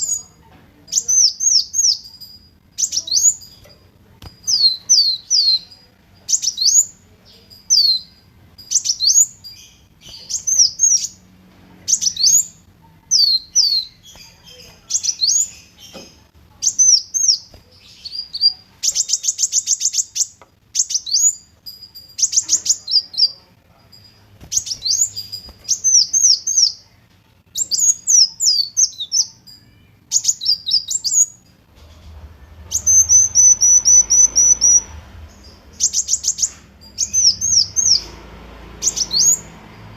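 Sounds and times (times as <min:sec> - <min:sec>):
sunbird chirping: 0:00.0 - 0:39.9
bird trilling: 0:32.7 - 0:38.1.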